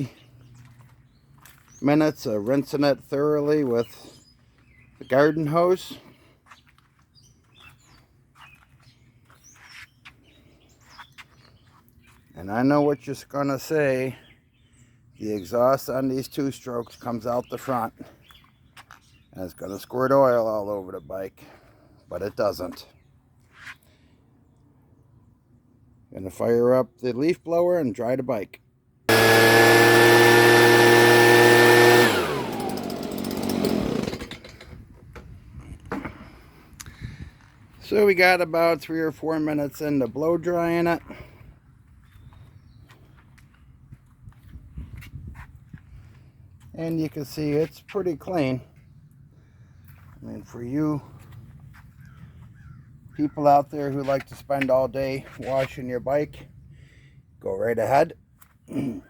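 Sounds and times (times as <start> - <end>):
faint birds chirping: 0.0 - 29.0, 35.2 - 57.7
leaf blower running: 29.1 - 34.8.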